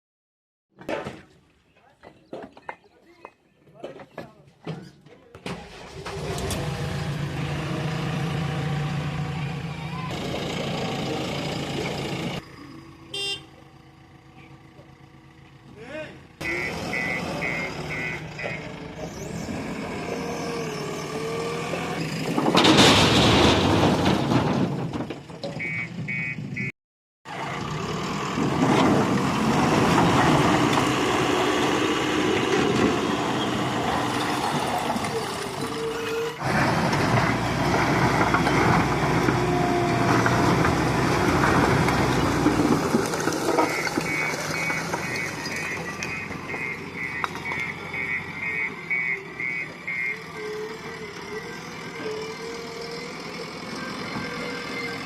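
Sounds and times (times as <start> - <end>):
heavy vehicle engines running: 4.0 - 26.7, 27.3 - 55.0
reversing alarm beeping: 16.4 - 18.7, 25.6 - 26.7, 43.6 - 51.6.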